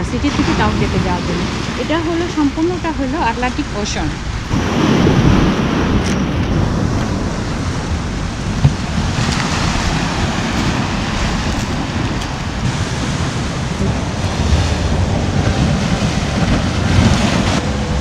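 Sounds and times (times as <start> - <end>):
ocean surf washing in: 0.0 - 18.0
wind buffeting microphone: 0.0 - 18.0.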